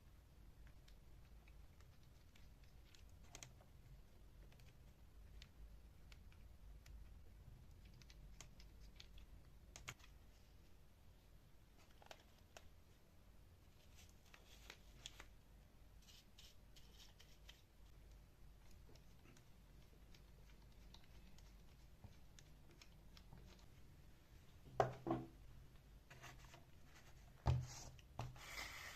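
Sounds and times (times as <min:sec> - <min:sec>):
faint clicks and taps: 0:04.4 - 0:10.2, 0:11.8 - 0:12.8.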